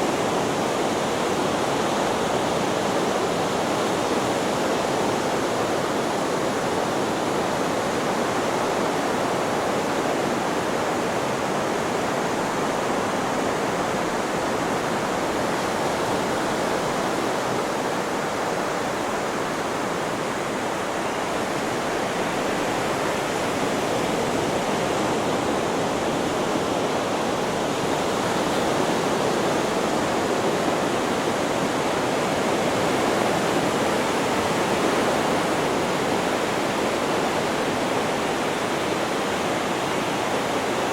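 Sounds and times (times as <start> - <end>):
steady white noise hiss: 0.0 - 40.9.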